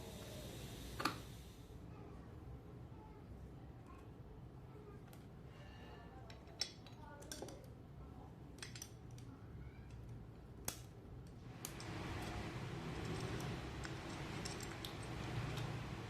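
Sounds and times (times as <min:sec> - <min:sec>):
even hissing noise: 0:00.0 - 0:02.0, 0:11.4 - 0:16.0
metal tools clinking: 0:11.8 - 0:15.7.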